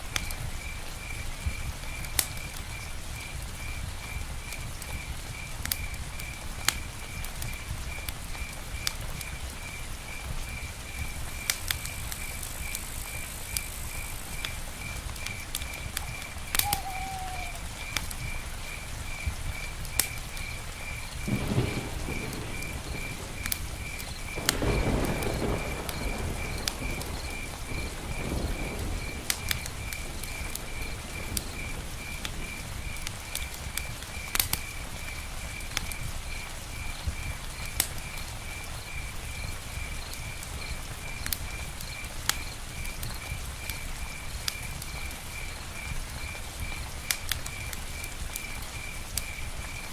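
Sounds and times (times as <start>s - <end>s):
campfire crackling: 0.0s - 49.9s
steady rain: 0.0s - 49.9s
insect chirping: 0.2s - 49.9s
distant thunder rumbling: 6.9s - 37.4s.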